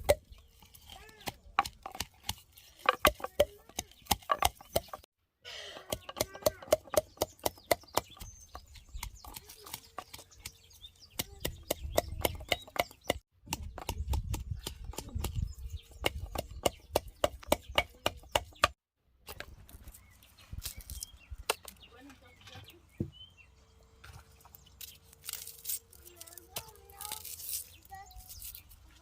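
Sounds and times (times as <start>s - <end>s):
sharp knocks and clicks: 1.2s - 5.1s, 5.8s - 8.3s.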